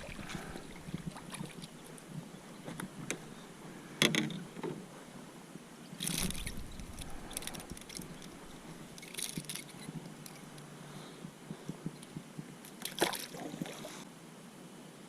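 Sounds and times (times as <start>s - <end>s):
water splashing: 0.0s - 3.4s, 6.0s - 9.7s, 12.8s - 14.0s.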